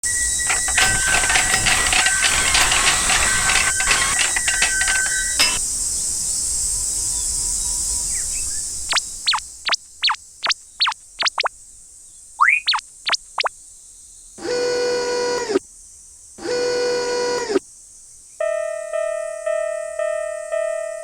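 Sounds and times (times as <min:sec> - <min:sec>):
alternating tones: 0:00.0 - 0:05.6, 0:16.4 - 0:17.6
sliding whistle tones: 0:00.0 - 0:05.6
clattering: 0:00.2 - 0:05.6.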